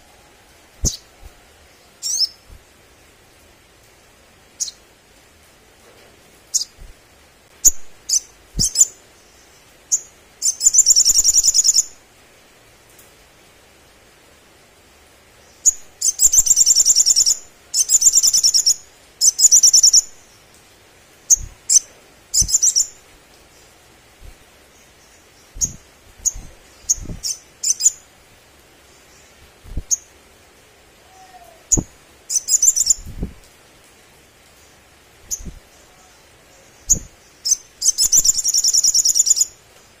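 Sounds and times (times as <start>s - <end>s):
bird singing buzzy trills: 0.8s - 3.1s, 6.5s - 6.9s, 7.6s - 12.0s, 15.4s - 20.5s, 21.3s - 28.2s, 31.2s - 33.2s, 34.6s - 39.6s.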